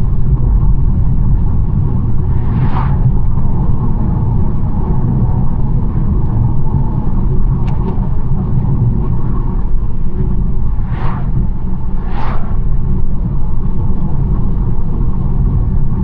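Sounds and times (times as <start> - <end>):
engine and tyre rumble: 0.0 - 16.0
short whooshes: 2.2 - 3.3, 10.7 - 12.9.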